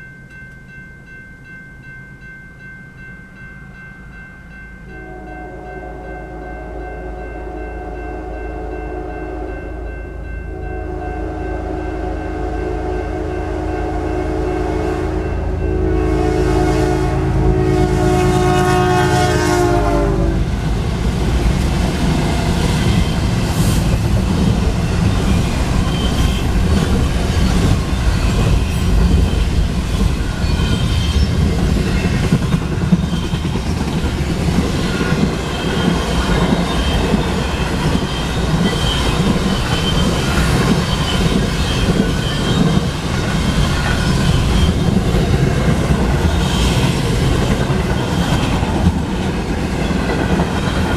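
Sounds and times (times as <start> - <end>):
locomotive air horn chord: 5.0 - 20.5
freight train wheels clattering: 20.5 - 50.9
high wheel squeal: 24.8 - 32.3, 34.8 - 45.4.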